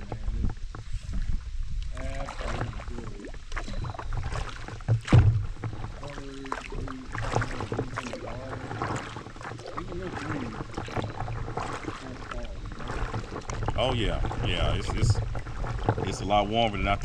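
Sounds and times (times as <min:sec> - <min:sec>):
paddle splashing in water: 0:00.0 - 0:17.0
wind rumble on microphone: 0:00.0 - 0:17.0
loud thump: 0:04.9 - 0:05.6.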